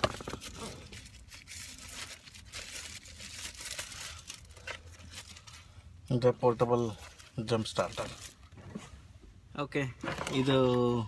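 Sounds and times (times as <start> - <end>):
packaging rustling and crinkling: 0.0 - 5.8.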